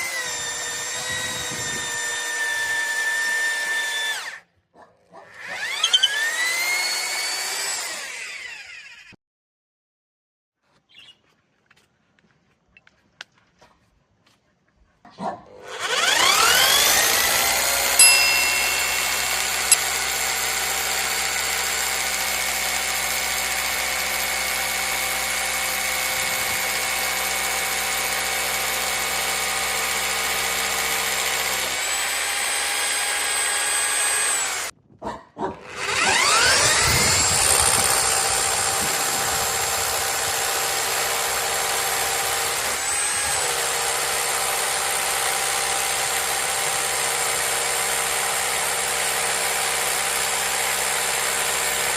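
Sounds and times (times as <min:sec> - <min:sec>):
rotary hammer motor whining: 0:05.4 - 0:09.2, 0:15.7 - 0:34.7, 0:35.6 - 0:43.4.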